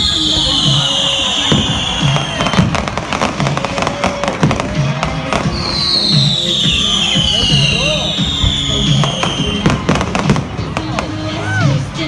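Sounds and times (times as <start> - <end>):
high falling whistle: 0.0 - 2.7, 5.4 - 9.6
fireworks crackling pops: 0.0 - 11.8
background music with steady beat: 0.0 - 12.0.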